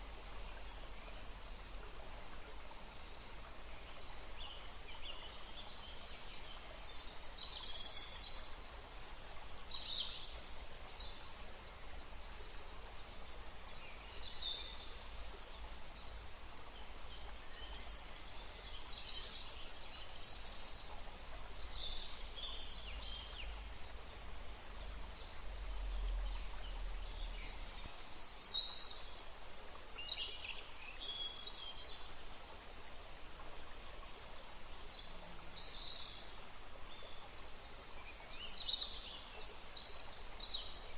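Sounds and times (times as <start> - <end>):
background hiss: 0.0 - 40.9
small birds singing: 16.7 - 32.1, 34.6 - 36.3, 36.9 - 40.9.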